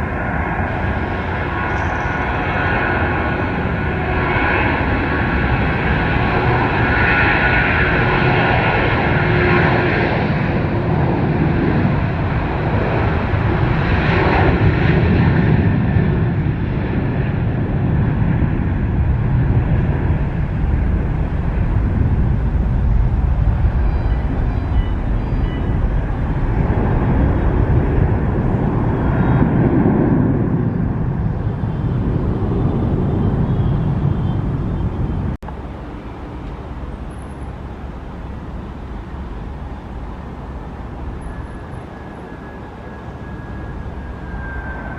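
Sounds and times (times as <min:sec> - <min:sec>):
jet engines roaring: 0:00.0 - 0:44.9
steady background noise: 0:30.2 - 0:44.9.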